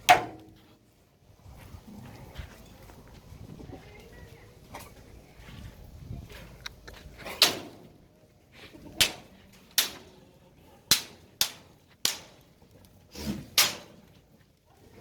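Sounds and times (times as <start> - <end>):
sharp cracks or slaps: 9.0 - 10.2, 10.9 - 12.5, 13.5 - 14.1.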